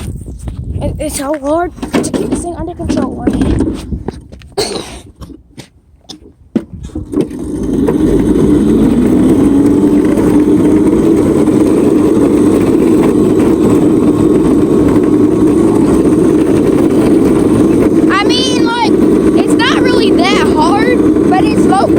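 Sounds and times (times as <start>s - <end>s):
loud rumble of cart riding: 0.0s - 5.2s, 6.2s - 21.9s
electric motor whine: 7.1s - 21.9s.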